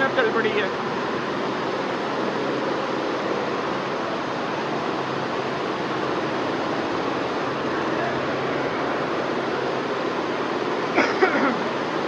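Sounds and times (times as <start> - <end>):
embroidery machines running: 0.0 - 12.0
faint underlying hum: 0.0 - 12.0.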